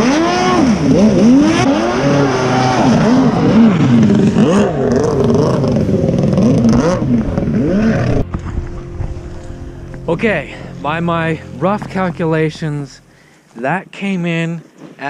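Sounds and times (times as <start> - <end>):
jet ski engine revving: 0.0 - 10.9.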